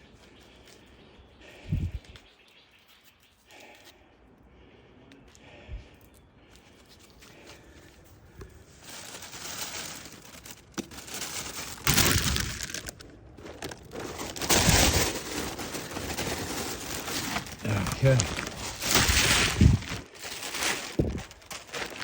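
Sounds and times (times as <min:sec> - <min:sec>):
plastic bag crinkling: 0:08.6 - 0:22.0.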